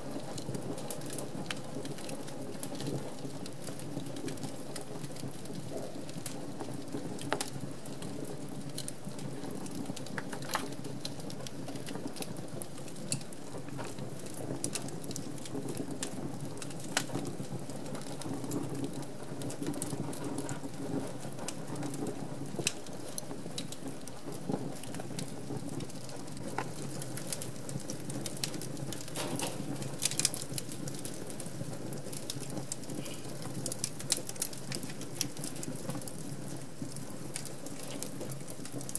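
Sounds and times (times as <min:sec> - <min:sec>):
wood fire crackling: 0:00.0 - 0:38.9
sharp pops of fire: 0:28.4 - 0:31.2.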